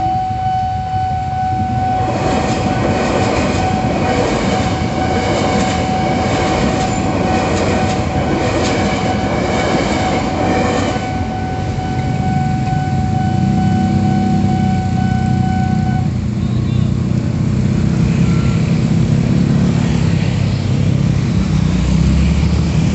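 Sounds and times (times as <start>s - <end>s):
crossing signal warning tone: 0.0s - 17.0s, 18.1s - 18.8s
motorcycle engines revving: 1.5s - 22.9s
train wheels rumbling on rails: 1.5s - 22.9s.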